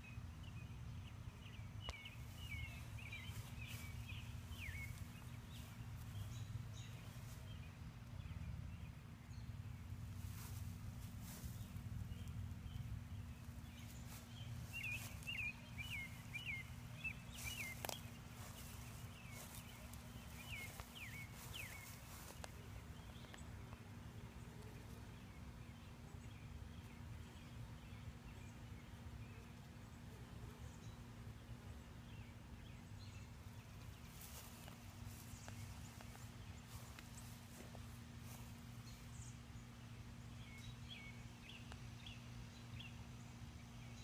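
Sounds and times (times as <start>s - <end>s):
faint steady hum: 0.0s - 44.0s
bird chirping: 0.5s - 9.5s, 11.2s - 23.4s.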